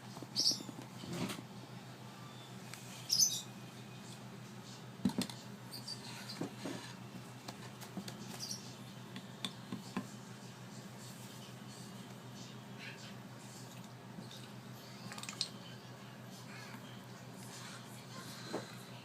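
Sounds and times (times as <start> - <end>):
steady low hum: 0.0 - 19.0
parrot chick squeaking: 0.4 - 0.7, 3.1 - 3.5, 8.3 - 8.7.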